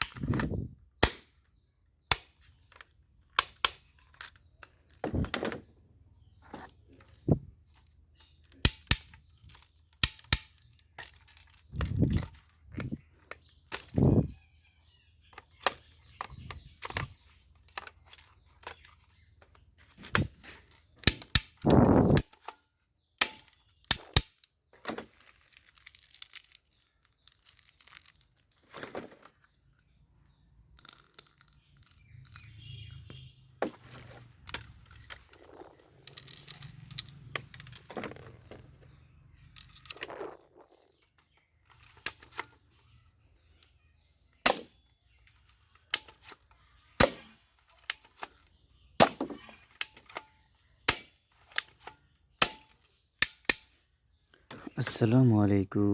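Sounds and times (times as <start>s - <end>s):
plastic toy guns clicking: 0.0s - 5.0s, 8.2s - 14.3s, 15.3s - 22.6s, 23.2s - 28.6s, 30.7s - 38.7s, 39.4s - 42.7s, 44.4s - 53.9s
plastic clatter: 0.0s - 22.6s, 23.2s - 53.6s
crinkling rustles: 9.3s - 43.6s.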